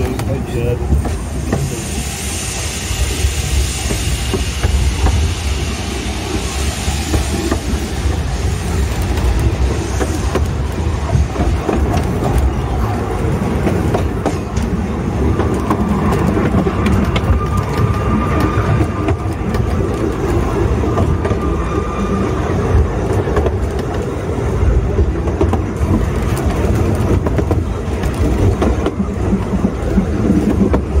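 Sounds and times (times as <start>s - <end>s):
train rumble: 0.0s - 31.0s
wheels clicking over rail joints: 7.0s - 31.0s.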